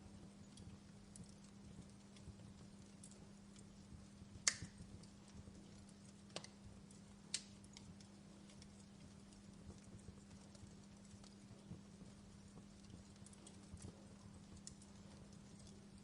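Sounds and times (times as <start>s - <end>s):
faint low hum: 0.0s - 16.0s
fire crackling in fireplace: 0.0s - 16.0s
sharp fire pops: 4.4s - 4.9s.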